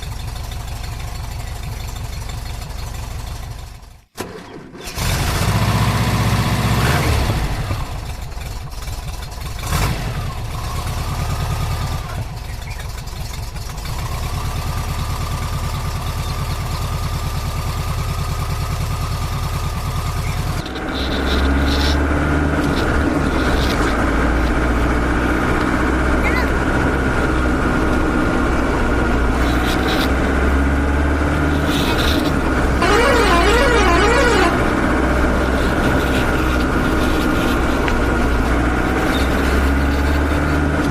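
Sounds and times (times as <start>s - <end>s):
engine throbbing: 19.4s - 40.9s.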